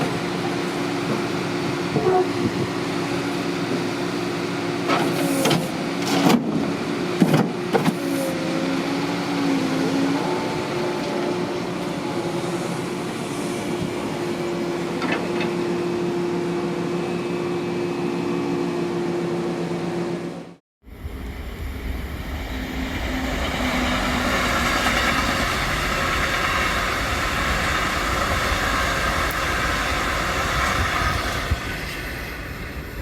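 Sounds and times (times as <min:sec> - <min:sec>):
whining hydraulic pump: 0:00.0 - 0:20.3
excavator engine running: 0:08.3 - 0:32.9.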